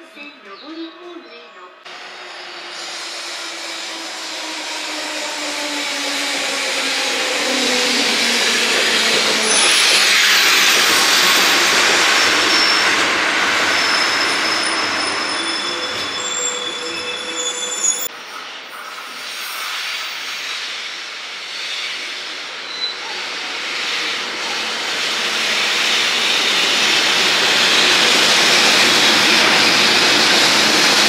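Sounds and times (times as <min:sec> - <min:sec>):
electric train running: 0:01.9 - 0:16.9, 0:23.6 - 0:31.0
high squealing tones: 0:02.0 - 0:18.1.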